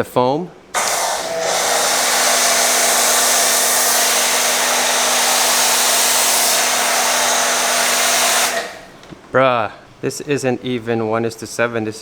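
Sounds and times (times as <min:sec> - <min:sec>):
pressure washer spray hiss: 0:00.8 - 0:09.0
pump hum: 0:00.8 - 0:09.0.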